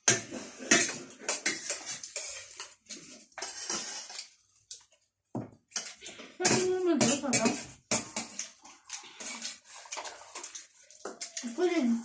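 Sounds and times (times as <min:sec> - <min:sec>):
spoons scraping dishes: 0:00.0 - 0:04.8, 0:05.7 - 0:11.9.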